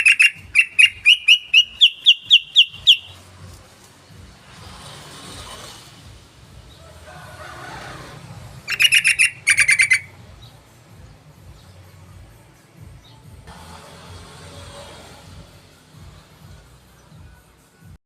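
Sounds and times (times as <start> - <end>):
bird chattering call: 0.0 - 3.2, 8.7 - 10.1.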